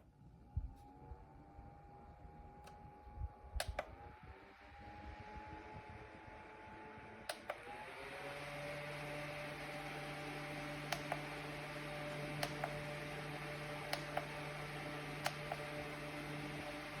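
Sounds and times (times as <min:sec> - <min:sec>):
desk fan motor hum: 0:00.8 - 0:17.0
sharp clicks: 0:03.6 - 0:03.9, 0:07.3 - 0:07.6, 0:10.8 - 0:11.3, 0:12.2 - 0:12.8, 0:13.9 - 0:14.4, 0:15.2 - 0:15.7.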